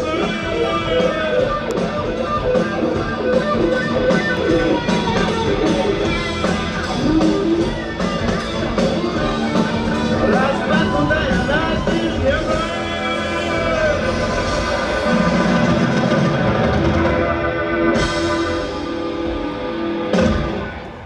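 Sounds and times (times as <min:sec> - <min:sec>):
steady drum beat: 0:00.0 - 0:20.7
electric guitar: 0:00.0 - 0:21.0
rock band playing instrumental: 0:00.0 - 0:21.0.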